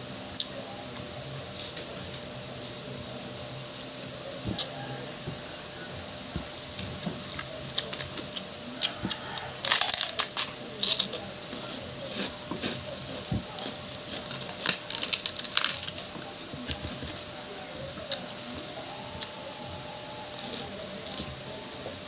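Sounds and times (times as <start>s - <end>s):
crunching pork cracklings: 4.4s - 22.0s
soft chewing clicks: 6.7s - 17.2s, 20.2s - 22.0s.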